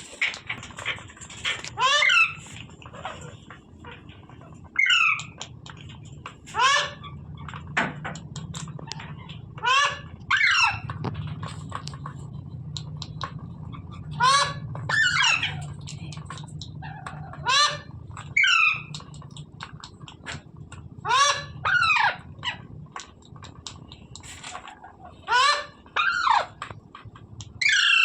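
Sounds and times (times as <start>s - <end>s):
low hum: 0.0s - 28.0s
parrot squawking: 0.2s - 4.0s, 4.6s - 5.5s, 6.5s - 7.7s, 8.4s - 10.9s, 13.2s - 20.2s, 21.0s - 22.7s, 24.6s - 26.6s, 27.5s - 28.0s.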